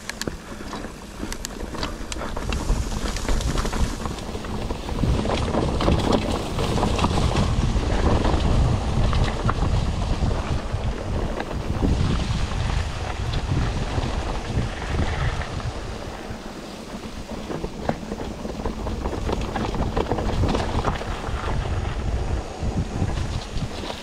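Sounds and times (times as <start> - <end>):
bike rattles and clicks: 0.0 - 24.0
wind buffeting microphone: 0.0 - 24.0.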